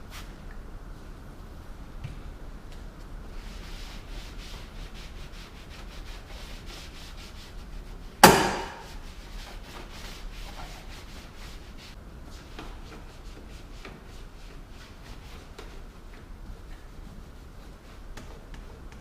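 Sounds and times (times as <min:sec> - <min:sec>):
towel rubbing on plastic: 0:03.3 - 0:19.0
sharp ringing knock: 0:08.2 - 0:08.8.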